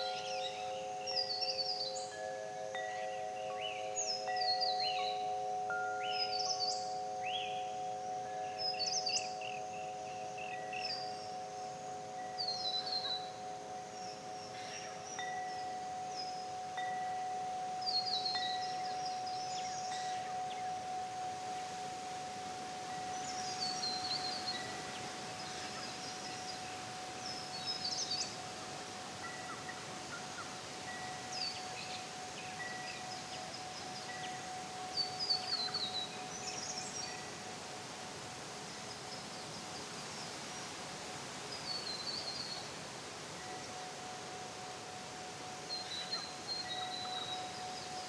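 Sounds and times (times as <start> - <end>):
birds singing: 0.0 - 37.5, 41.5 - 42.8, 43.4 - 48.0
steady background hiss: 0.0 - 48.0
thin steady tone: 0.0 - 48.0.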